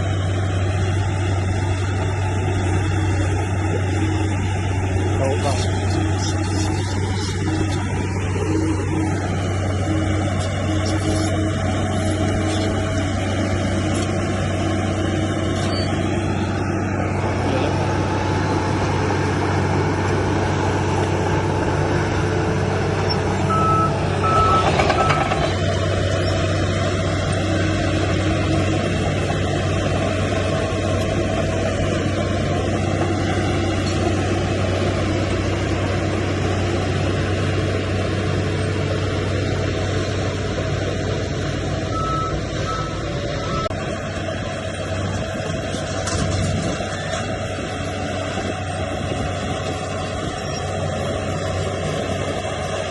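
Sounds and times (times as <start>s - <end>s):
diesel machinery engine hum: 0.0s - 52.9s
reversing alarm beeps: 23.5s - 25.4s, 41.9s - 43.8s.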